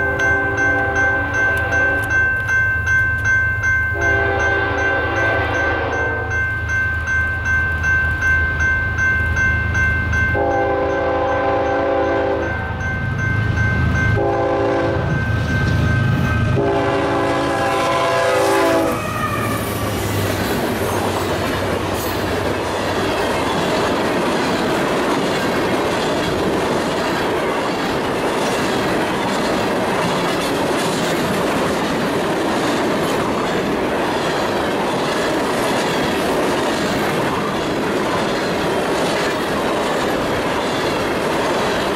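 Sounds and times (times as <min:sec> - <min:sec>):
high steady ringing: 0:00.0 - 0:18.7
locomotive horn blasts: 0:04.0 - 0:06.4, 0:10.4 - 0:12.6, 0:14.2 - 0:15.1, 0:16.5 - 0:19.6
wheels clattering on rail: 0:19.6 - 0:41.9.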